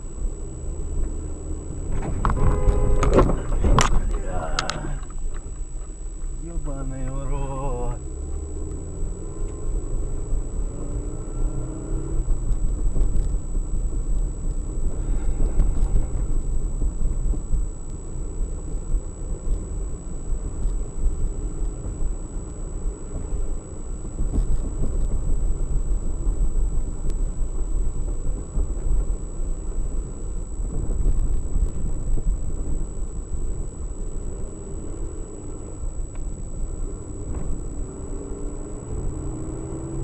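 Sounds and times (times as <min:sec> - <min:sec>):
car engine rumble: 0:00.0 - 0:40.0
high-pitched electronic whine: 0:00.0 - 0:40.0
road noise: 0:00.0 - 0:40.0.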